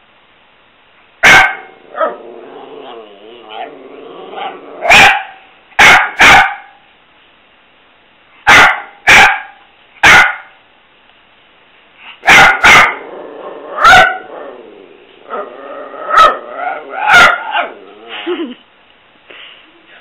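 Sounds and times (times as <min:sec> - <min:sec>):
dog barking: 0:01.2 - 0:02.2, 0:04.8 - 0:06.8, 0:08.4 - 0:10.6, 0:12.2 - 0:13.0, 0:13.8 - 0:14.3, 0:16.1 - 0:16.4, 0:17.0 - 0:17.8.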